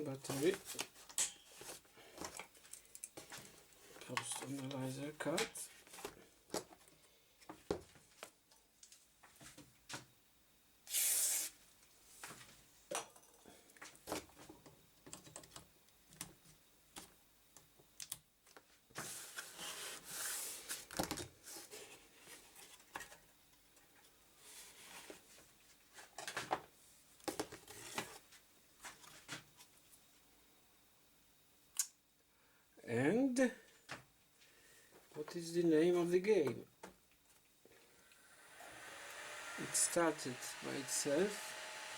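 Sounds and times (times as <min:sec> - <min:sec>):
rustling and scraping: 0:00.2 - 0:04.7
short hiss: 0:10.9 - 0:11.6.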